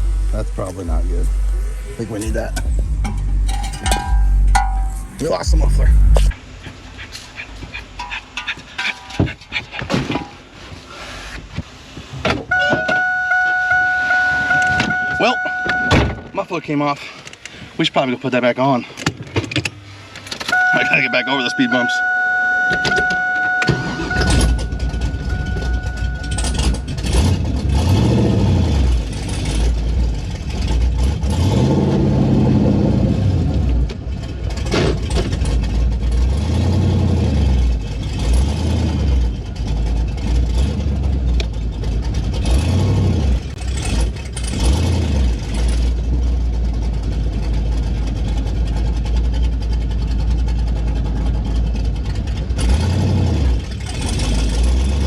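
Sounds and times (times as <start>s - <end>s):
car engine starting and revving: 0.0s - 6.4s, 19.9s - 55.0s
electronic warning tone: 12.5s - 16.3s, 20.5s - 27.0s.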